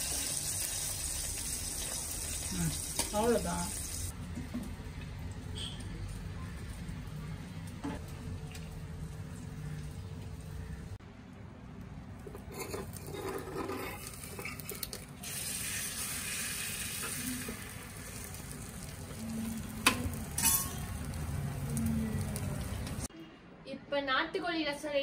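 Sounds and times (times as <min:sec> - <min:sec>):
food sizzling in pot: 0:00.0 - 0:04.2, 0:12.5 - 0:23.1.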